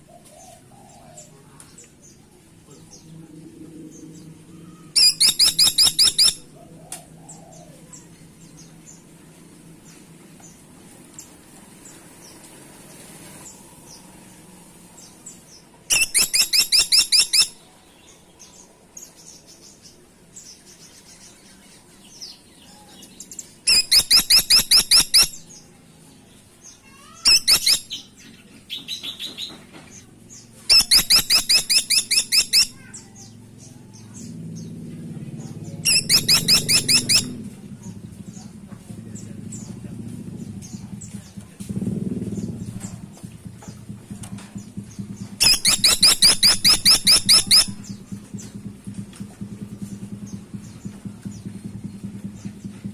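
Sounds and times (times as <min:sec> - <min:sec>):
woodpecker rattling calls: 0:05.0 - 0:06.5, 0:15.9 - 0:17.6, 0:23.6 - 0:25.5, 0:26.8 - 0:28.2, 0:30.7 - 0:33.2, 0:35.6 - 0:37.4, 0:44.6 - 0:48.5
low rumble: 0:33.3 - 0:36.1.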